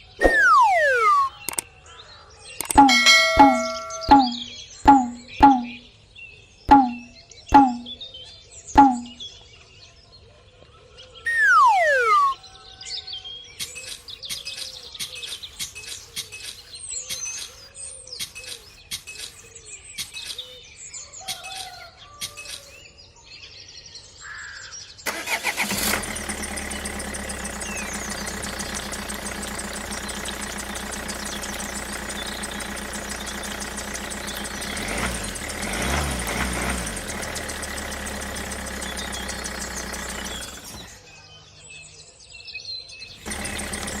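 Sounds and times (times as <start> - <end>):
birds chirping: 0.0 - 1.6, 2.6 - 5.9, 6.7 - 8.0, 8.7 - 9.3, 11.3 - 12.4, 26.1 - 42.2, 43.0 - 44.0
falling whistle-like tone: 0.0 - 1.6, 2.8 - 5.8, 8.8 - 9.2, 11.3 - 12.4
small engine running: 0.0 - 1.6, 6.7 - 7.9, 25.1 - 41.2, 43.2 - 44.0
scattered clicks: 0.2 - 1.6, 2.6 - 5.8.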